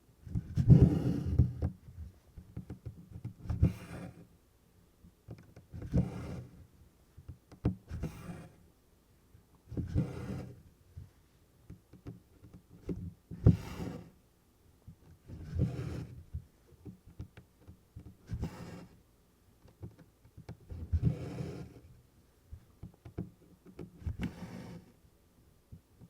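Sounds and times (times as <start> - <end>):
thread rasping through fabric: 15.3 - 16.2, 22.8 - 25.0.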